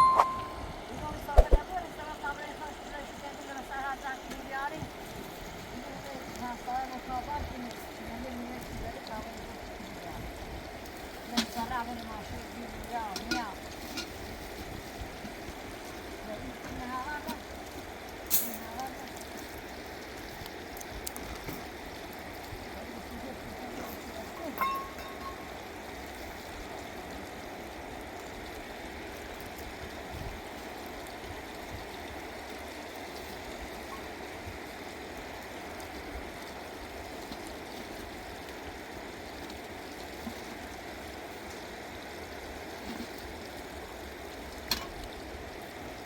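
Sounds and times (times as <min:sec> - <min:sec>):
running water rushing: 0:00.0 - 0:46.0.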